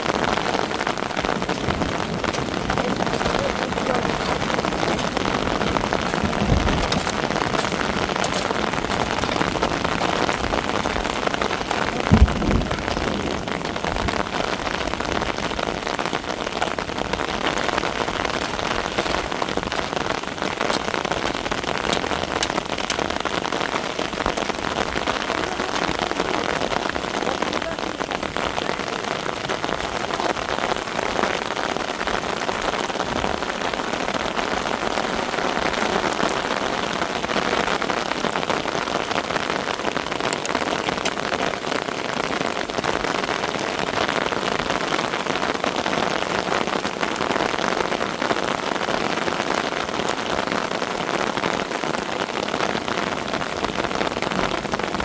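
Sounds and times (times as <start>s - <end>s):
rain falling: 0.0s - 55.0s
low thumps: 0.9s - 14.2s.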